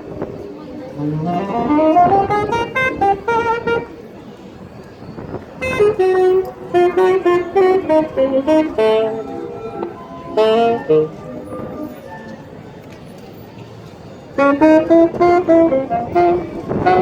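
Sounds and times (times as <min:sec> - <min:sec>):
tune of short pitched notes: 0:00.9 - 0:03.9, 0:05.6 - 0:12.6.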